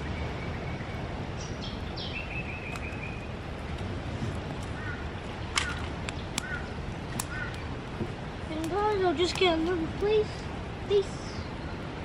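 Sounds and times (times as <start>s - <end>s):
birds chirping: 0.0s - 3.4s, 4.6s - 7.9s
low background noise: 0.0s - 12.0s.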